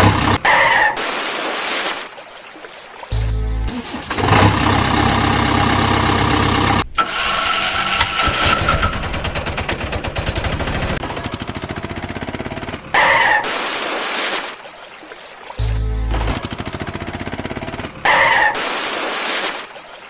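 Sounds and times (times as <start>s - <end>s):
motor engine chugging: 0.0s - 0.4s, 3.2s - 13.0s, 15.6s - 18.0s.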